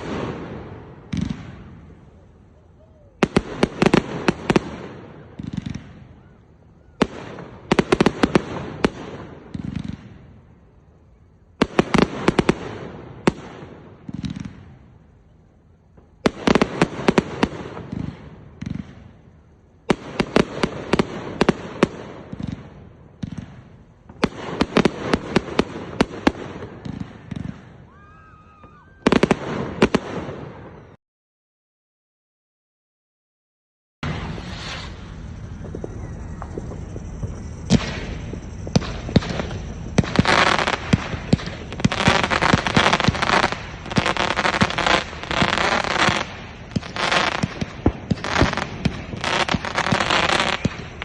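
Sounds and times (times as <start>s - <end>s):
fireworks cracking and banging: 0.0s - 10.4s, 19.8s - 30.9s, 34.0s - 51.0s
fireworks rumble: 0.0s - 31.0s, 34.0s - 51.0s.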